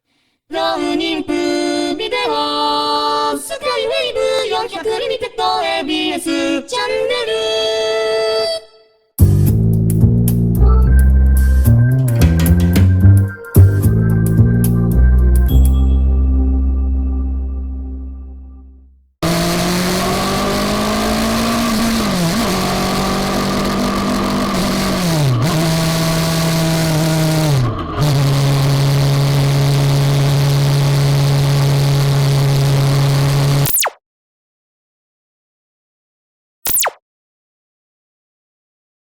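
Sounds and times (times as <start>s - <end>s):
motorcycle engine running: 19.2s - 33.6s.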